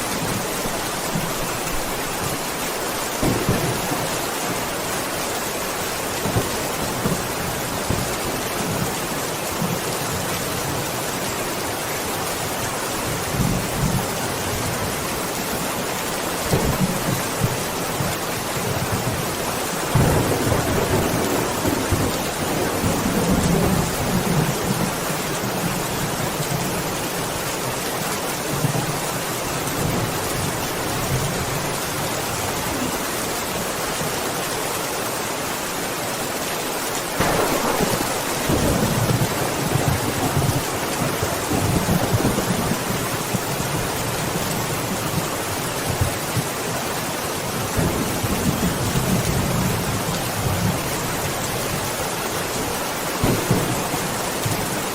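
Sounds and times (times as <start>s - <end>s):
heavy rain: 0.0s - 54.9s
thunder rolling: 3.2s - 4.7s, 37.2s - 43.0s, 53.2s - 54.5s.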